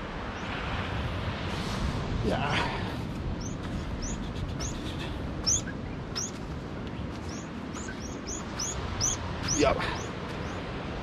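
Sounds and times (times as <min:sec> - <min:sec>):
low rumble of wind or surf: 0:00.0 - 0:11.0
small bird chirping: 0:03.4 - 0:10.6.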